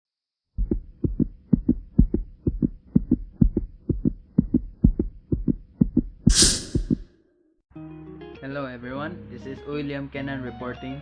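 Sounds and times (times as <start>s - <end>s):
heartbeat-like low thumps: 0.6s - 7.0s.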